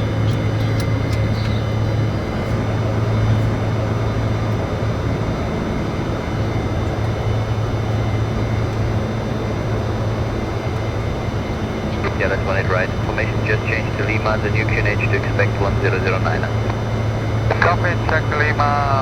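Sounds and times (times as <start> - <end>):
jet engines at low power: 0.0 - 19.0
steady low hum: 0.0 - 19.0
air-conditioning rush: 9.5 - 19.0.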